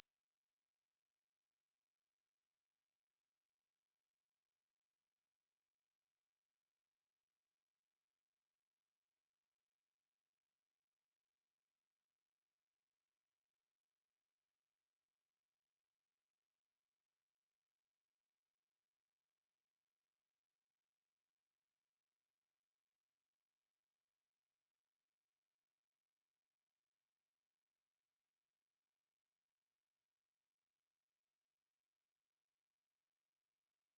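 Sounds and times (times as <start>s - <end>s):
high-pitched sine test tone: 29.1s - 33.9s.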